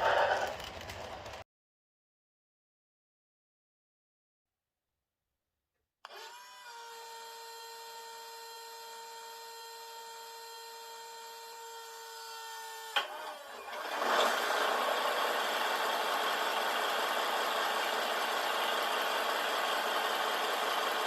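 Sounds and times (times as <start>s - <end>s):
small electric motor whining: 6.1s - 21.0s.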